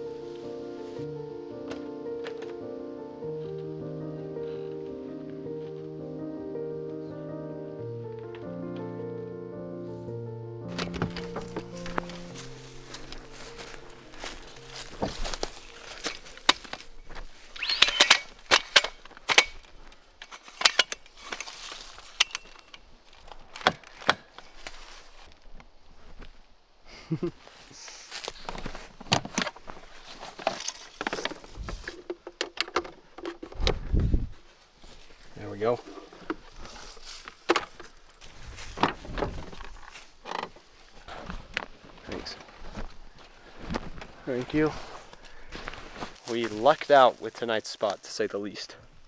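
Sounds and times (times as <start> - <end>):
rustling: 10.7 - 26.6, 27.2 - 48.0.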